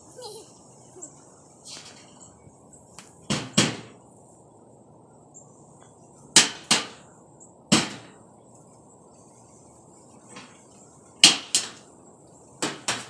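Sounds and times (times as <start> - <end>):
sharp bangs of hard strikes: 6.4 - 7.0, 7.7 - 8.2.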